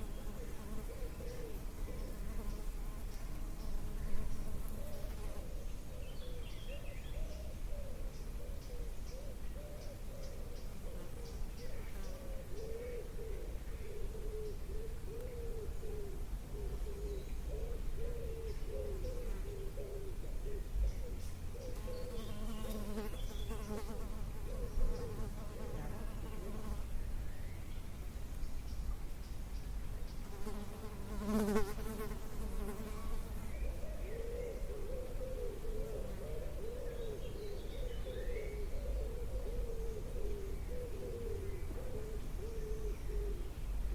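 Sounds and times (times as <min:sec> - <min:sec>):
bird giving low calls: 0:00.0 - 0:02.7, 0:04.0 - 0:26.5, 0:32.8 - 0:43.9
small birds chirping: 0:00.0 - 0:43.9
flying insect buzzing: 0:30.3 - 0:33.4.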